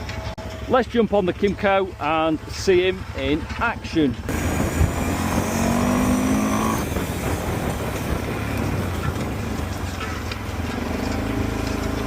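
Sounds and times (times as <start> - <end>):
wind and ground noise: 0.0 - 12.0
quad bike engine accelerating: 4.2 - 12.0.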